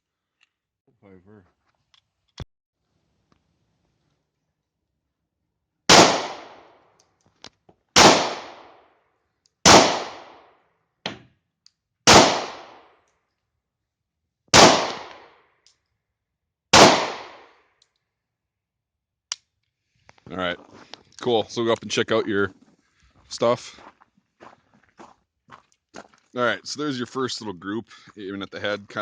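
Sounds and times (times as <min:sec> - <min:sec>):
pistol shots echoing: 0:05.9 - 0:06.7, 0:08.0 - 0:08.8, 0:09.6 - 0:10.4, 0:12.1 - 0:12.9, 0:14.5 - 0:15.3, 0:16.7 - 0:17.5.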